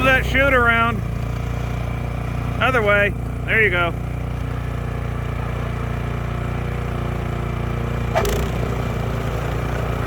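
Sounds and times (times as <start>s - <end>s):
snowblower engine running: 0.0s - 10.0s.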